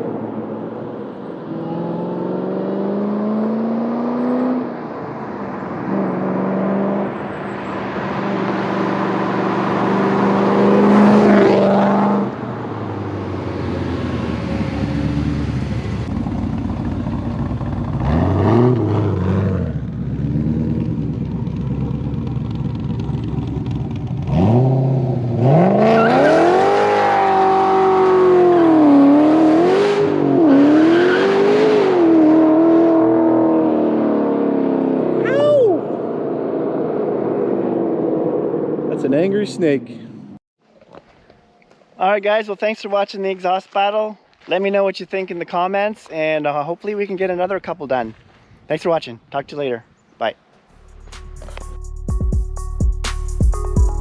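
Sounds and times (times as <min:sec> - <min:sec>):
car engine revving: 0:01.5 - 0:04.8, 0:07.9 - 0:16.7, 0:17.3 - 0:35.2, 0:50.8 - 0:52.2.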